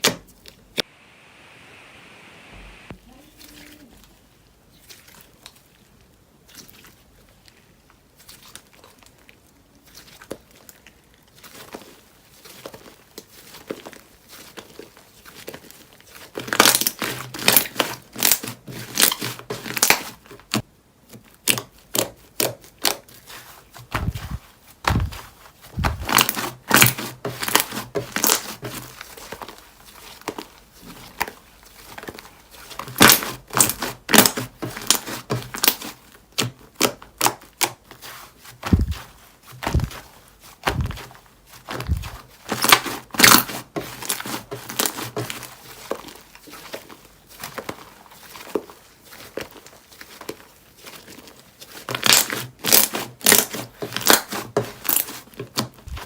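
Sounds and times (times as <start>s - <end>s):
slime crackling and popping: 7.3s - 38.0s, 38.6s - 56.0s.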